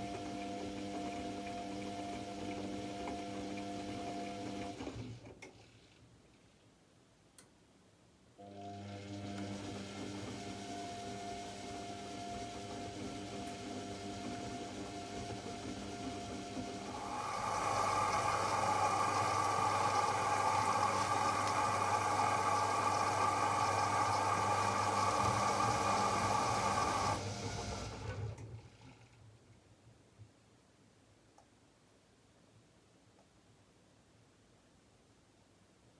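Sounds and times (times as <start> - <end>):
washing machine pump hum: 0.0 - 5.9, 8.4 - 29.2.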